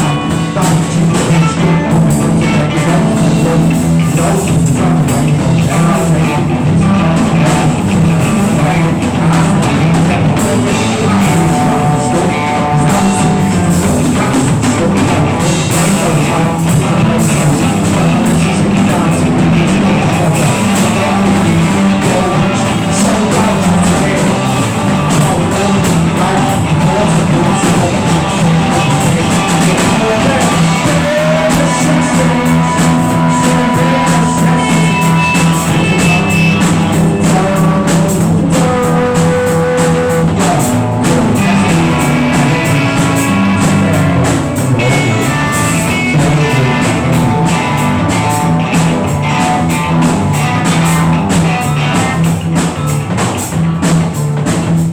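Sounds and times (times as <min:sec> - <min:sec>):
rock band playing: 0:00.0 - 0:54.9.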